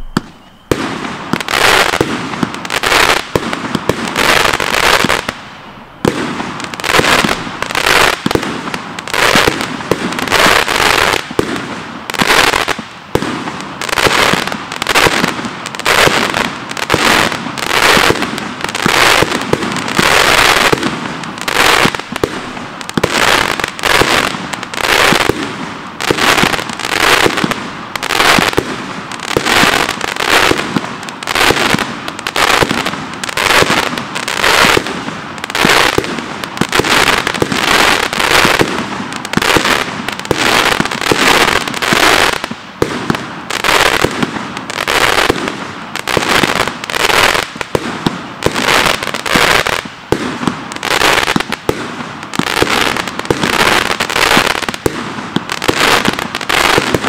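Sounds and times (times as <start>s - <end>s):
crackling firework bursts: 0.0s - 57.0s
firework tubes launching: 0.0s - 57.0s.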